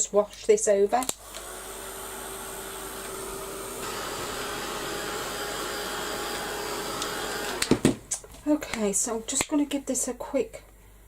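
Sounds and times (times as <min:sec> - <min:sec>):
electric blower running: 0:01.1 - 0:08.0.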